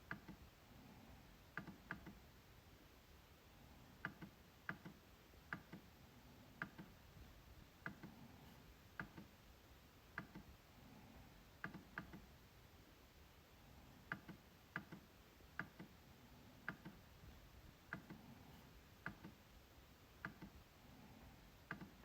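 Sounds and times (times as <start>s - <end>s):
trackpad clicking: 1.6s - 2.2s, 4.0s - 5.8s, 16.6s - 17.0s.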